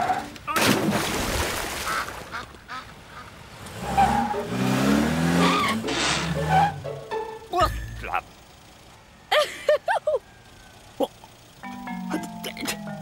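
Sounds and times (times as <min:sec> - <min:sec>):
cartoon car engine revving: 0:03.7 - 0:08.2.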